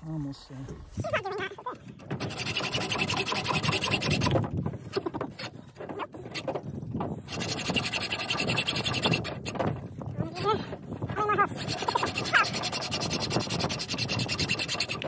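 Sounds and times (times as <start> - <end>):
saw blade cutting: 2.1 - 4.4, 7.3 - 9.5, 11.5 - 15.0.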